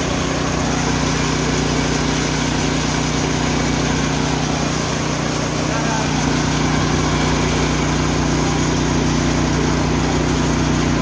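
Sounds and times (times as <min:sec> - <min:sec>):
milling machine humming: 0:00.0 - 0:11.0.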